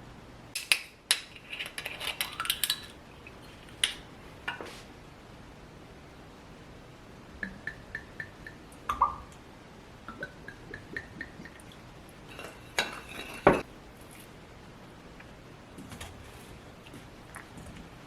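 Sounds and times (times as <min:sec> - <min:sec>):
dishes clattering: 0:12.2 - 0:13.7
utensils tapping against dishes: 0:12.3 - 0:13.7.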